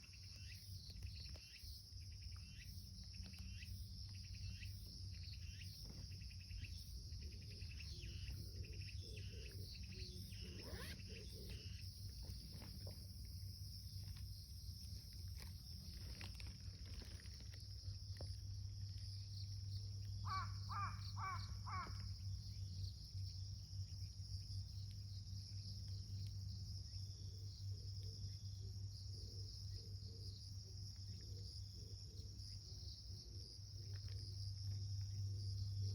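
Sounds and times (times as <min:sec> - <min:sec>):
insect chorus: 0:00.0 - 0:35.9.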